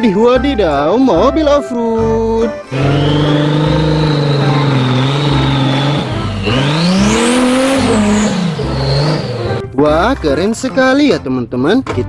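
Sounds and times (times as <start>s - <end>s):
engine running and revving: 2.7s - 9.8s.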